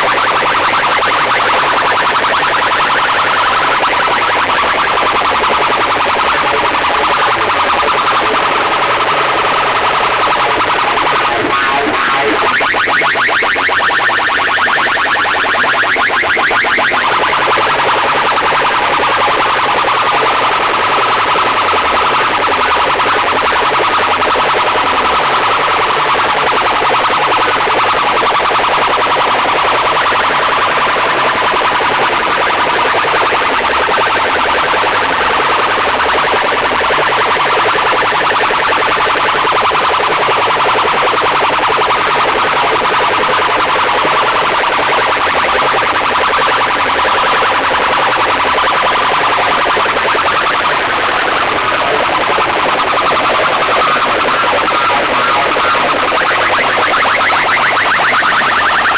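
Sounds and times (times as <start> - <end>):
distorted music from loudspeakers: 4.7 - 21.9
steady high tone: 6.3 - 18.6, 49.9 - 58.9.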